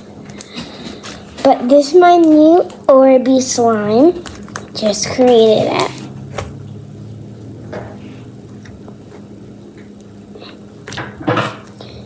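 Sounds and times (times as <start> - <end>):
steady low hum: 0.0 - 12.0
slime squishing: 1.4 - 6.8.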